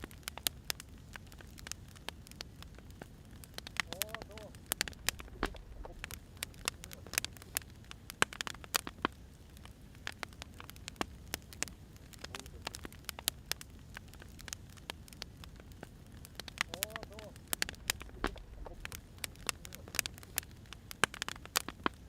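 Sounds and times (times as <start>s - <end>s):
firewood popping and snapping: 0.0s - 22.0s
low rumble of flames: 0.0s - 22.0s.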